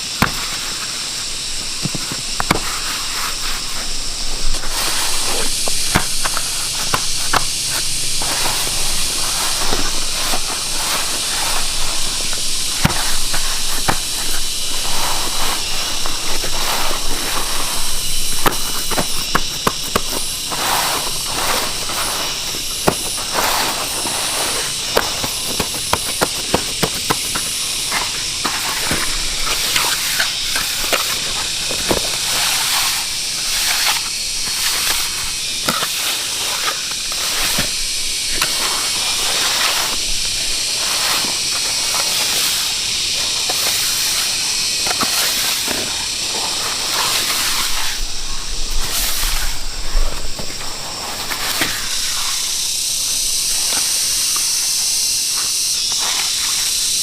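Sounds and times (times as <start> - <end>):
steady high hiss: 0.0 - 57.0
cement scraping and clicking: 4.6 - 17.8, 18.4 - 37.7.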